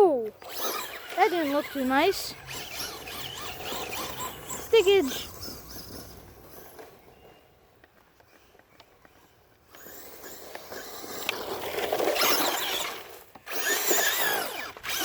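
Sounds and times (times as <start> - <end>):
tyres scraping over ground: 0.0 - 15.0
electric motor whining: 0.4 - 7.0, 9.7 - 15.0.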